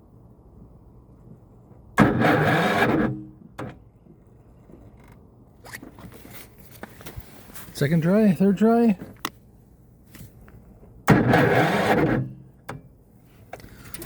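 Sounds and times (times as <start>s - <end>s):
generator electric starter cranking: 2.0s - 3.2s, 11.1s - 12.3s.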